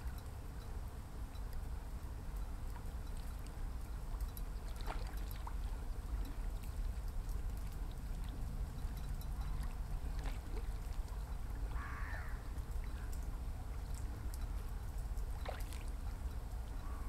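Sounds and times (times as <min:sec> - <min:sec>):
steady low rumble: 0:00.0 - 0:17.0
harsh crow-like bird call: 0:11.8 - 0:12.4.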